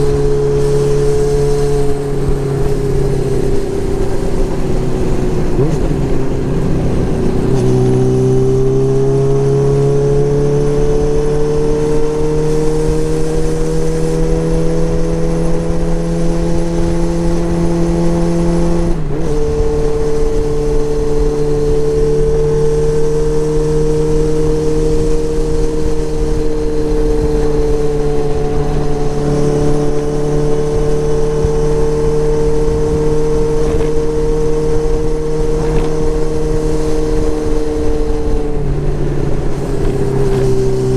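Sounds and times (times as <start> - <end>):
motorcycle engine running: 0.0 - 40.9
wind rush on microphone: 0.0 - 40.9.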